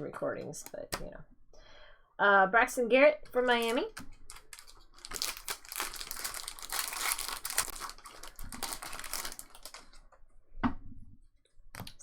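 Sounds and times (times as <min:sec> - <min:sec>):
foil wrappers crinkling: 0:03.4 - 0:10.1.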